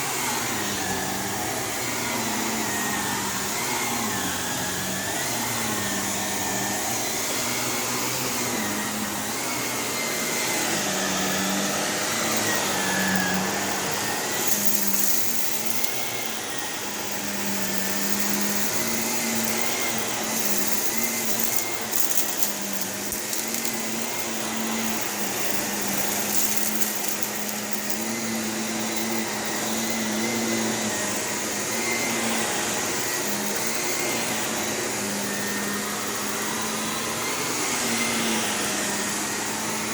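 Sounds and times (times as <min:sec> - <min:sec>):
vacuum cleaner running on carpet: 0:00.0 - 0:39.9
debris crunching in vacuum: 0:10.0 - 0:31.0.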